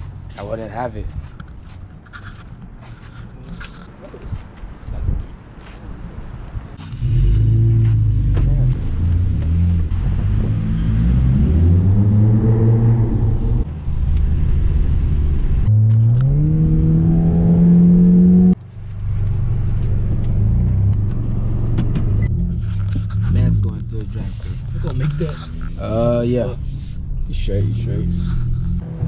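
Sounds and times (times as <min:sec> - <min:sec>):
car engine revving: 0:06.8 - 0:29.0.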